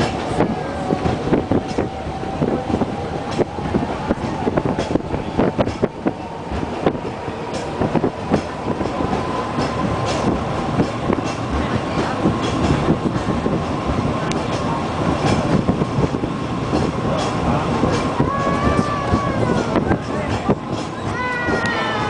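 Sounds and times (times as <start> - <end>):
tram rolling on rails: 0.0 - 22.0.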